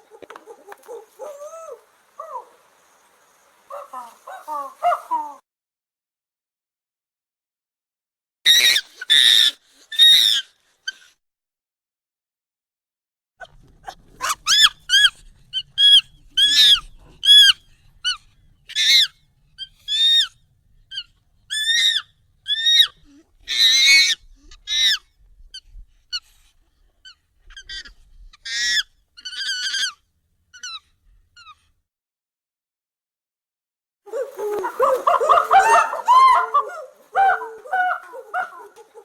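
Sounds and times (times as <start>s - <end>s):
high-pitched monkey calls: 0.0s - 2.6s, 3.7s - 5.4s, 8.5s - 11.1s, 13.8s - 25.1s, 27.0s - 31.6s, 34.1s - 39.0s.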